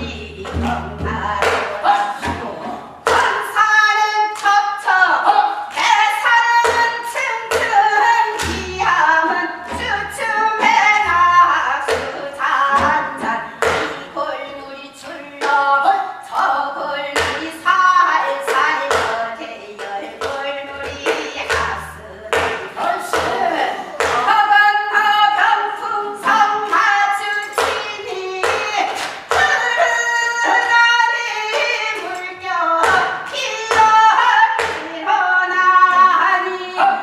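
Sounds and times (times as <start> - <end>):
low drum thumps: 0.0 - 2.5, 8.4 - 12.2
voices singing folk song: 0.0 - 37.0.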